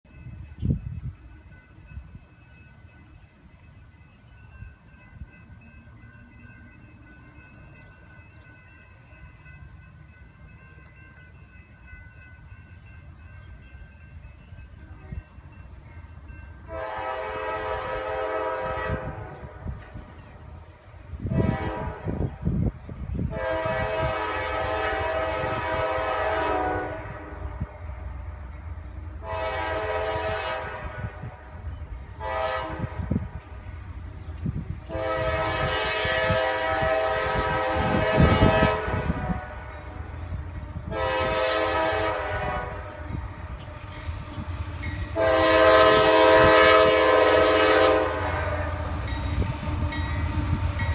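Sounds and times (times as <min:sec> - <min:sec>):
low rumble of train: 0:00.0 - 0:50.9
locomotive air horn blasts: 0:16.7 - 0:19.8, 0:21.2 - 0:22.4, 0:23.3 - 0:27.8, 0:29.2 - 0:31.4, 0:32.2 - 0:33.4, 0:34.9 - 0:40.1, 0:40.8 - 0:43.4, 0:45.1 - 0:50.9.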